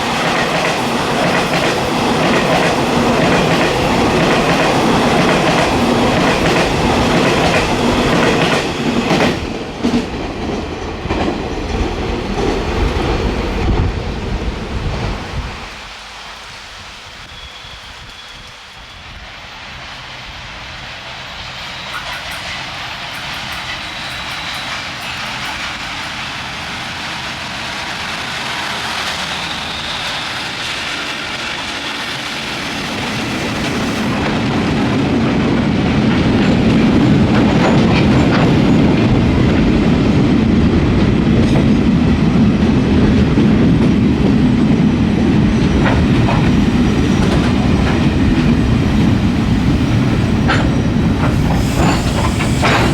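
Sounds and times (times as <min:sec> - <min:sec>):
diesel locomotive engines: 0:00.0 - 0:52.9
heavy rumble of train rolling past: 0:00.0 - 0:52.9
wheels clacking over rail joints: 0:21.8 - 0:28.0, 0:45.5 - 0:52.9.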